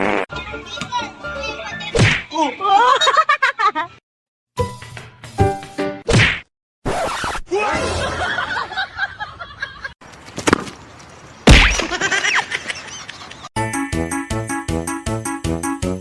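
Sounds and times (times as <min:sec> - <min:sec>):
people laughing: 0:02.6 - 0:04.0, 0:07.8 - 0:10.0.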